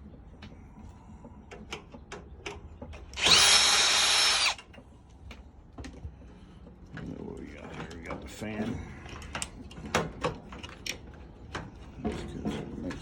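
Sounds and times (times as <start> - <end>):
power drill spinning: 3.2 - 4.6.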